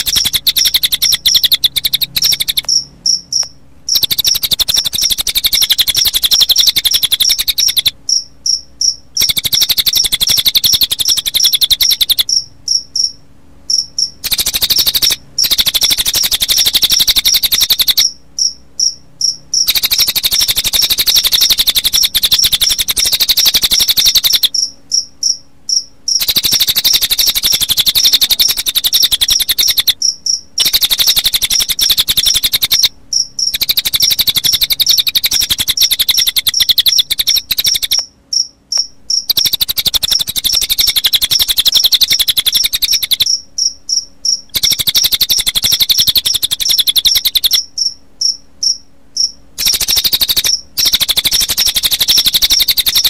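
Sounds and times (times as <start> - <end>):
bird song fast high trill: 0.0 - 18.6, 25.7 - 38.1
crickets chirping: 0.0 - 53.0.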